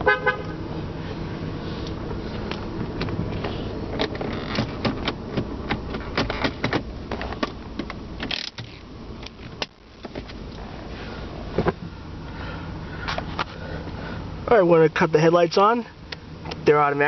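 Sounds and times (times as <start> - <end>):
low steady hum: 0.0 - 17.0
car controls clicking and knocking: 2.5 - 10.5.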